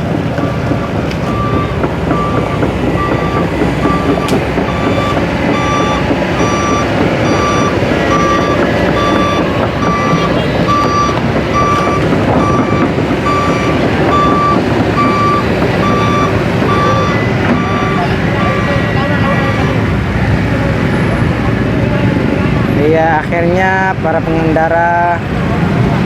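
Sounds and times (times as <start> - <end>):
reversing alarm beeping: 0.0 - 19.9
heavy engines and traffic rumble: 0.0 - 26.0.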